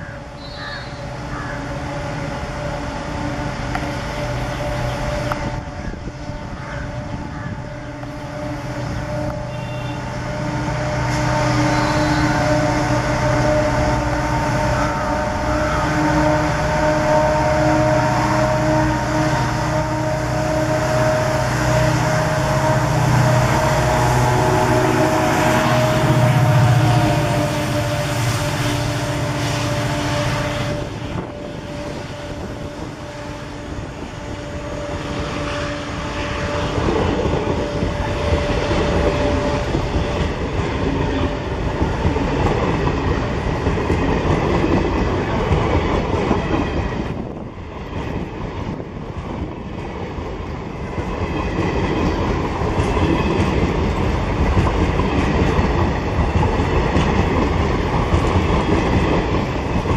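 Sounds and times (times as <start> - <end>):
diesel locomotive engine hum: 0.0 - 59.9
train wheels clattering over rails: 36.3 - 59.9.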